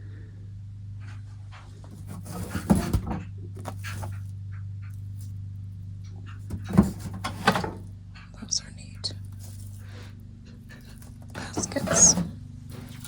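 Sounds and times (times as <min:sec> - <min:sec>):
steady low hum: 0:00.0 - 0:13.0
items clattering and rattling: 0:01.8 - 0:04.3, 0:06.2 - 0:07.9, 0:09.2 - 0:13.0.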